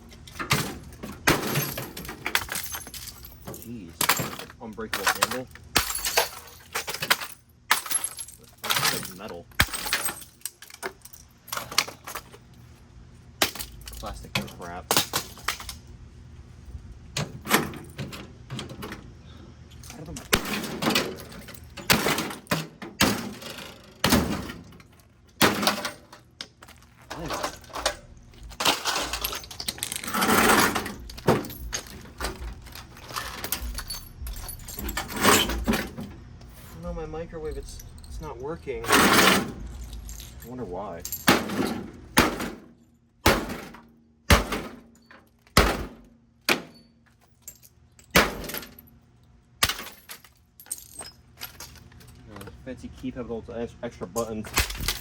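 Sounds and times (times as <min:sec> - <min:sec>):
rattle of breaking debris: 0:00.1 - 0:12.4, 0:13.4 - 0:15.9, 0:19.9 - 0:36.4, 0:37.2 - 0:48.9, 0:54.2 - 0:55.0
heavy blows smashing microwave: 0:00.4 - 0:08.0, 0:20.2 - 0:23.4, 0:24.0 - 0:26.1, 0:41.2 - 0:44.9, 0:45.5 - 0:46.8, 0:48.1 - 0:48.8.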